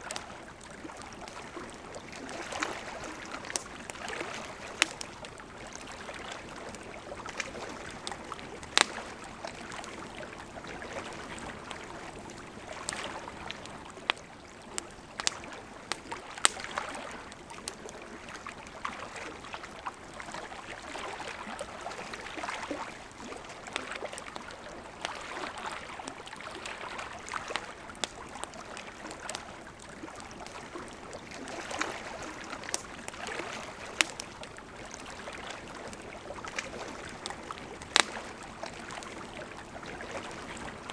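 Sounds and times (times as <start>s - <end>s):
burning wood crackling: 0.0s - 18.4s, 26.9s - 40.9s
fire pops and snaps: 1.2s - 10.0s, 12.7s - 16.9s, 27.4s - 29.5s, 30.4s - 34.6s, 35.6s - 39.3s.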